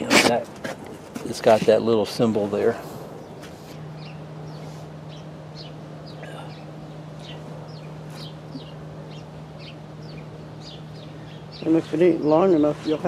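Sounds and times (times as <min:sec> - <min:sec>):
steady low hum: 0:00.0 - 0:13.0
small bird chirping: 0:03.2 - 0:13.0.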